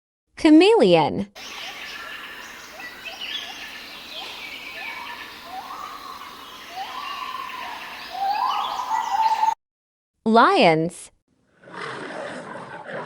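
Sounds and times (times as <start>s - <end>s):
faint steady hiss: 1.4s - 9.5s
birds chirping: 1.4s - 9.6s.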